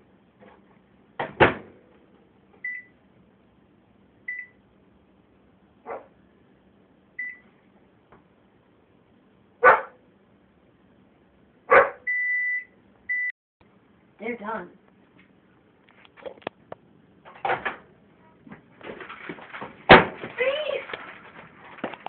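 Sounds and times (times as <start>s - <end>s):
faint hum: 0.0s - 22.0s
microwave oven beeps: 2.6s - 3.0s, 4.3s - 4.6s, 7.2s - 7.6s, 12.0s - 13.3s
loud short noises: 19.2s - 21.4s.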